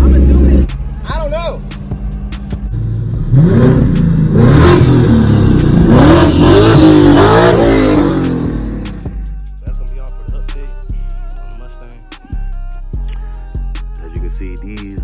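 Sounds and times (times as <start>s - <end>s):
car engine accelerating hard: 0.0s - 9.2s.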